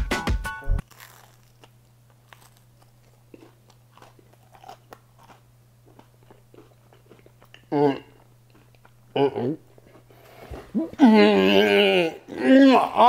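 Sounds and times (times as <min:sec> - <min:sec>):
low steady hum: 0:00.7 - 0:13.0
crunching and chewing pizza crust: 0:00.8 - 0:10.8.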